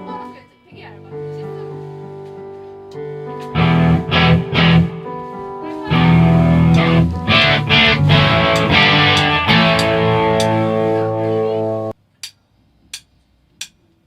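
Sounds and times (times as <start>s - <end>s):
electric guitar strumming: 3.5s - 5.3s, 5.9s - 11.9s.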